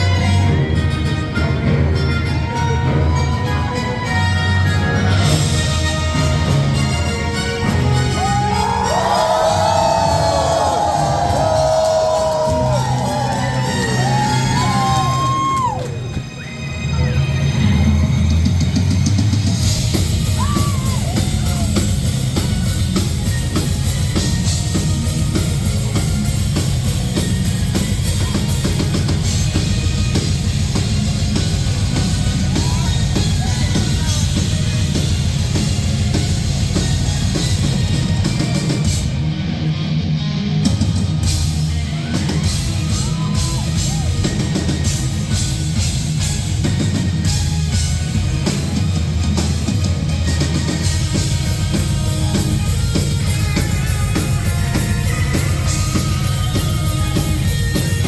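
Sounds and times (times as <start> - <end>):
metal band playing live: 17.0 - 58.0.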